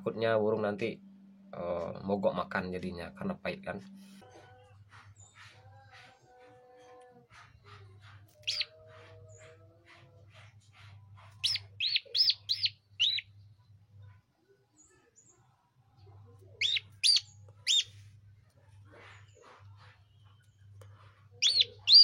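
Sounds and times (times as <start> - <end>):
low steady hum: 0.0 - 5.1
bird chirping loudly: 8.4 - 8.7, 11.4 - 13.3, 16.5 - 18.0, 21.4 - 22.0
faint rapid chirping: 10.7 - 14.2, 16.3 - 18.1, 18.8 - 22.0.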